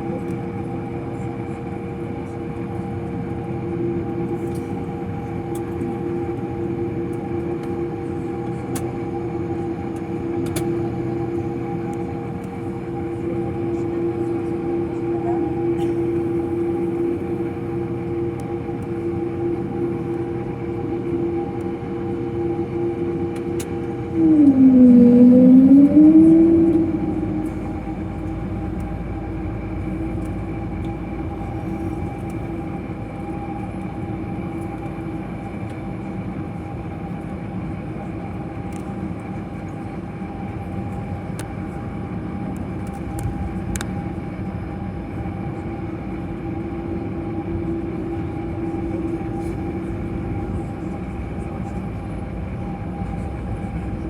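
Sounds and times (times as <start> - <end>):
airliner cabin hum: 0.0 - 54.0
tone dipping in pitch: 24.0 - 28.6.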